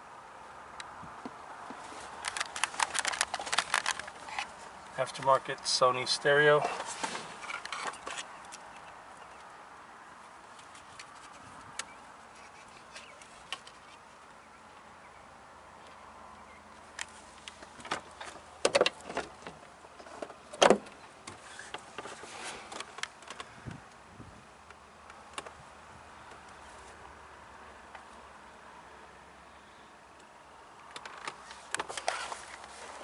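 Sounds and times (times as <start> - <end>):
clicks and knocks of handling: 1.6 - 4.5, 16.9 - 23.5.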